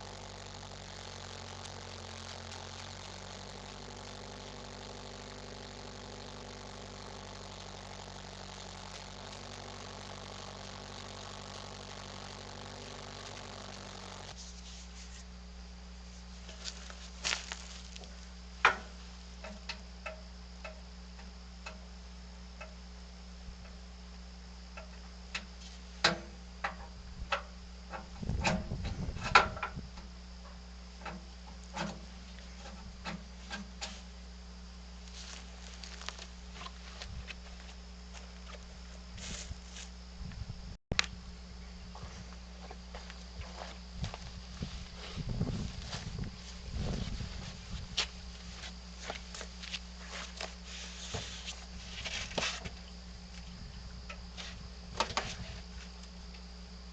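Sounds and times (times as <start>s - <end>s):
engine idling: 0.0s - 40.0s
low steady hum: 0.0s - 56.9s.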